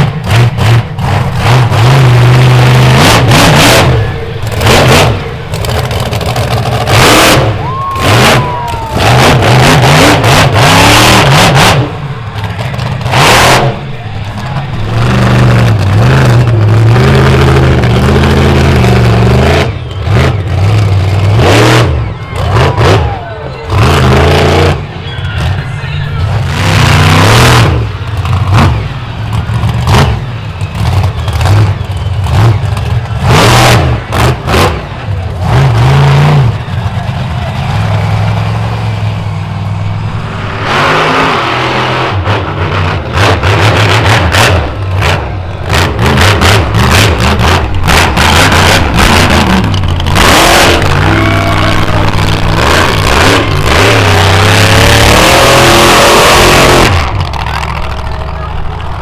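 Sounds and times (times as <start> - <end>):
truck engine revving: 0.0 - 59.0.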